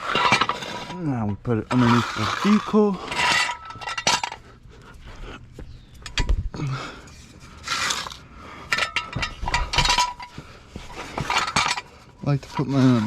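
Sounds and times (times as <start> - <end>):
metal floor jack clanking: 0.0 - 0.9, 3.1 - 4.4, 8.7 - 10.4
jack scraping: 0.0 - 4.5, 7.1 - 13.0.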